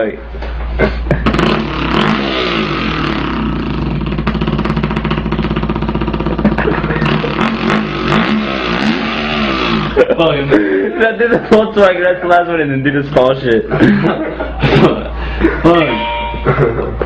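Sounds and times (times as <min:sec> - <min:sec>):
man imitating dirt bike engine: 0:00.8 - 0:11.1.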